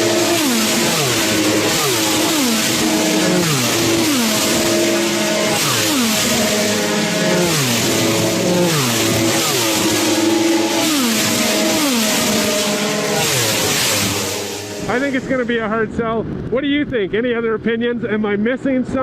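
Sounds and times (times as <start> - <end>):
racing motorcycles passing: 0.0 - 15.8.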